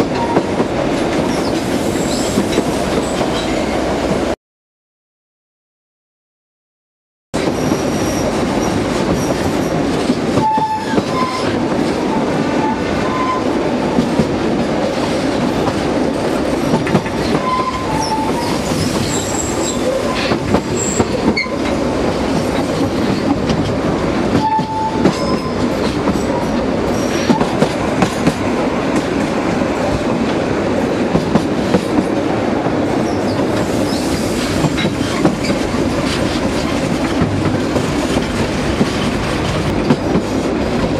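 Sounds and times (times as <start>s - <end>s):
train wheels clattering over track: 7.4s - 40.9s.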